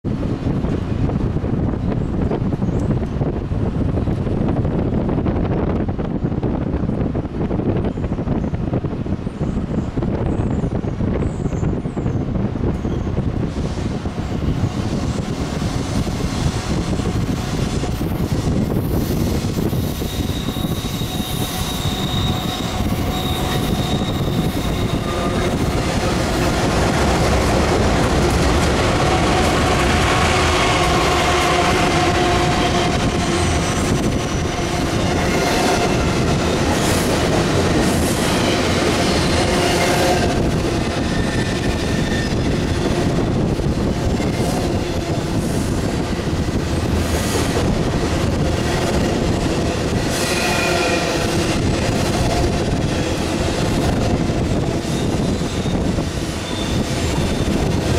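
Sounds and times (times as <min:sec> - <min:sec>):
diesel locomotives passing: 0:00.1 - 0:57.9
wheels squealing: 0:19.7 - 0:26.0
freight cars rolling: 0:21.8 - 0:45.2.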